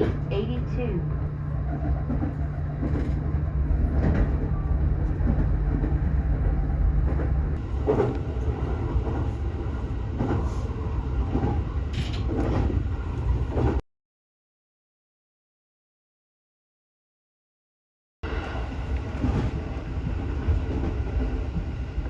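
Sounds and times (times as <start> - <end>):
train carriage rumble: 0.0 - 13.8, 18.2 - 22.0.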